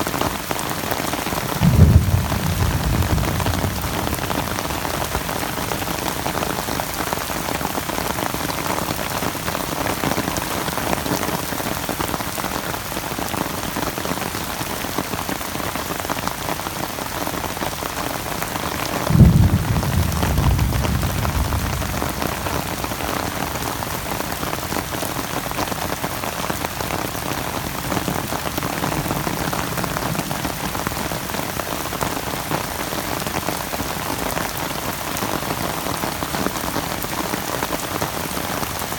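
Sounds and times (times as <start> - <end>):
steady rain hiss: 0.0 - 38.9
low rumbling thump: 1.6 - 5.3.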